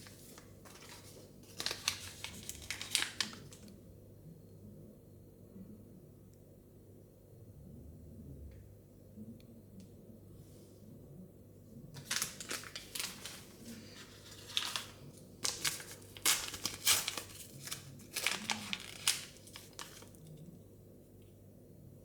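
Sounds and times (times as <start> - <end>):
plastic wrapping crinkling and tearing: 0.0 - 3.7, 12.0 - 20.3.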